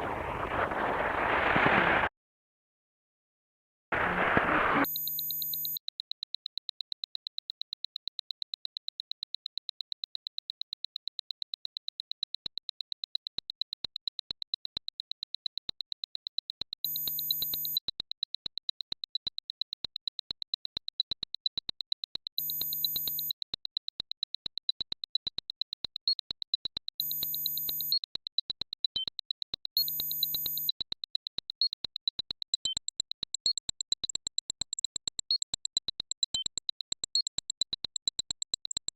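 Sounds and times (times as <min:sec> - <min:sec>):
short high-pitched beeps: 0:04.8 - 0:05.8, 0:16.8 - 0:17.8, 0:22.4 - 0:23.3, 0:27.0 - 0:28.0, 0:29.8 - 0:30.8.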